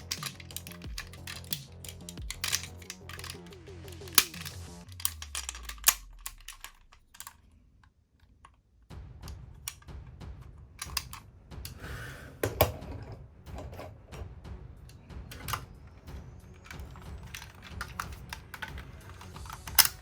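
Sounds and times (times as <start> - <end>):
plastic toy parts clicking: 0.0 - 8.6, 9.6 - 9.9, 10.8 - 11.2, 15.3 - 15.7, 16.4 - 20.0.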